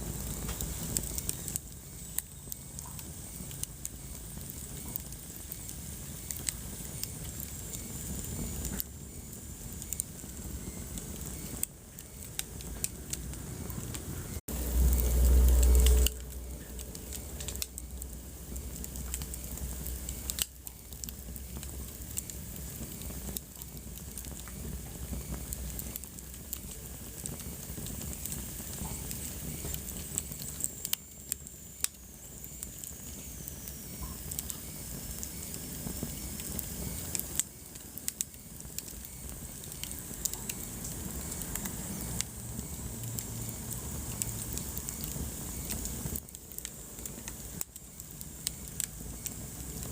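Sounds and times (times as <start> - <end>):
fireplace fire crackling: 0.0 - 49.9
faint high whistle: 15.0 - 17.6.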